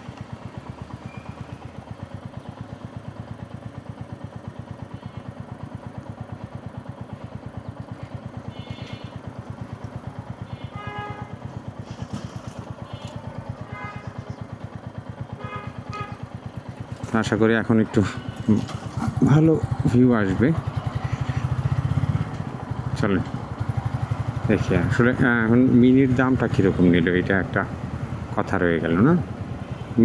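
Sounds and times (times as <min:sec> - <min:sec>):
motorcycle engine running: 0:00.0 - 0:30.0
traffic horn toots: 0:10.5 - 0:11.6, 0:12.8 - 0:14.5, 0:15.3 - 0:16.4, 0:17.9 - 0:18.9, 0:26.0 - 0:30.0.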